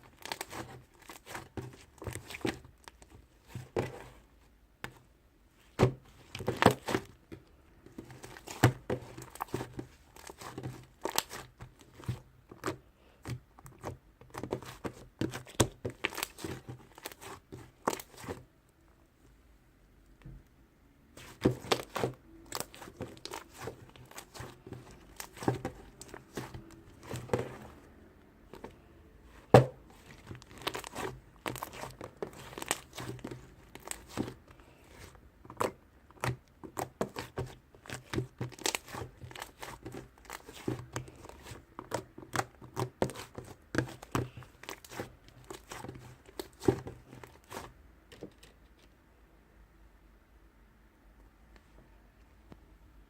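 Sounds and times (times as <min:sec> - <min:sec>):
crinkling and crackling clicks: 0:21.2 - 0:28.8, 0:29.4 - 0:49.0.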